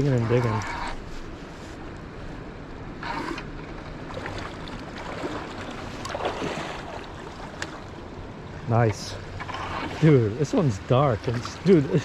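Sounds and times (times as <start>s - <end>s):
river water rushing: 3.0s - 12.0s.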